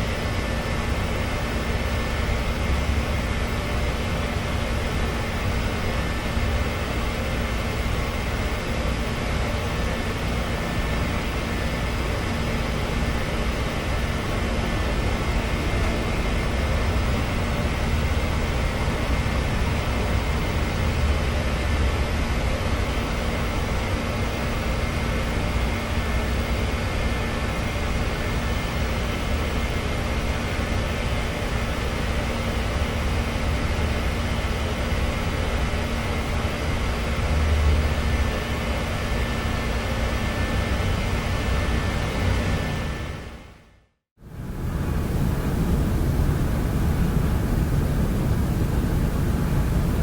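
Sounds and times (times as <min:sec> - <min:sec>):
faint hum tones: 0:44.2 - 0:50.0.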